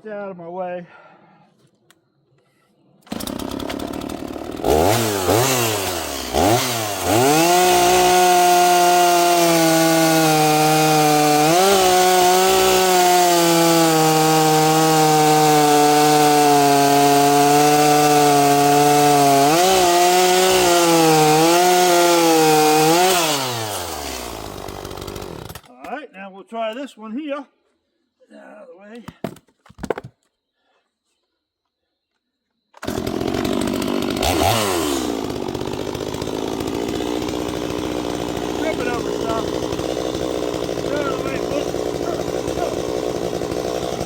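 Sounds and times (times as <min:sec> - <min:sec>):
chainsaw revving and cutting log: 0:03.1 - 0:25.7, 0:32.8 - 0:44.0.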